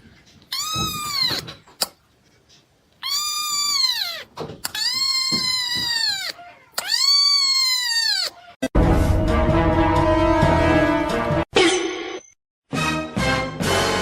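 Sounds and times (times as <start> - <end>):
cat meowing: 0.5 - 1.6, 3.0 - 8.6.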